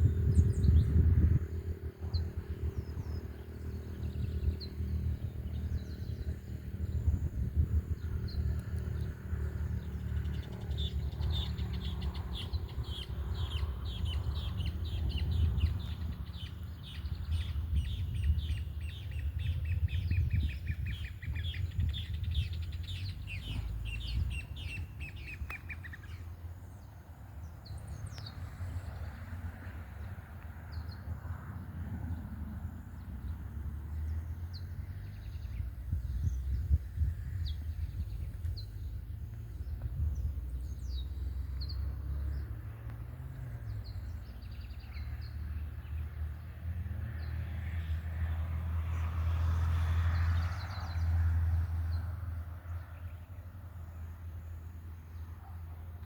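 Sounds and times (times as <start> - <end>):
bird chirps: 10.2 - 26.8.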